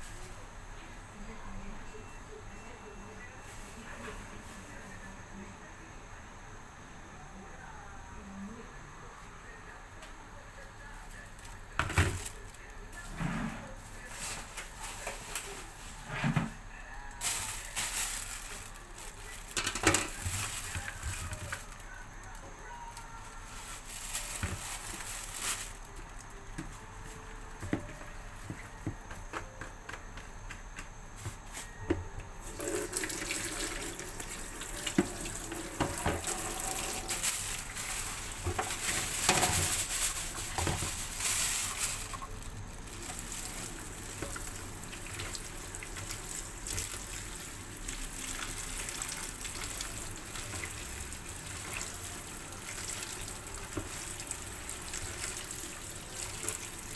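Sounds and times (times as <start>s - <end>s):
tap water running into sink: 32.5s - 37.1s.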